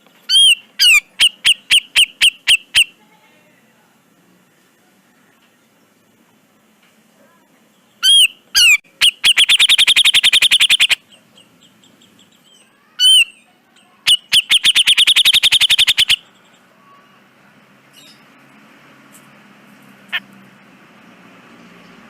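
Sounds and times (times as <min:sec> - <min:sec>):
bird calling rattling notes: 0:00.2 - 0:03.0, 0:08.0 - 0:13.4, 0:14.1 - 0:16.7.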